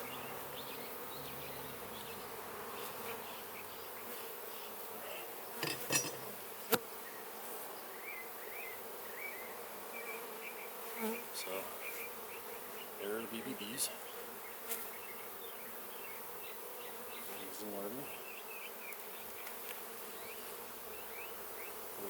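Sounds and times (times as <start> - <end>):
bees buzzing: 9.7 - 17.7.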